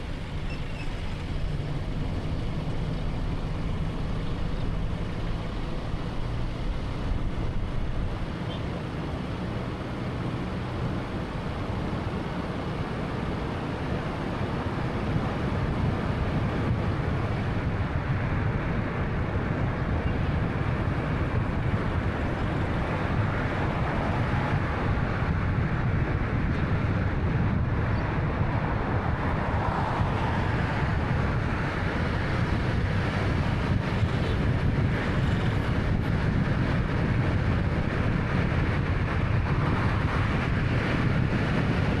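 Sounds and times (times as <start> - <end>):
car engine hum: 0.0 - 42.0
wind noise: 0.0 - 42.0.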